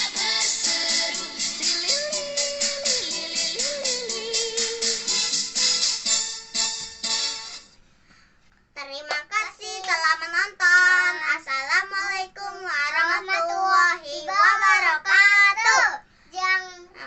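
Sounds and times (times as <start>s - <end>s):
child singing: 0.0s - 5.0s, 8.8s - 17.0s
backing music: 0.0s - 7.8s.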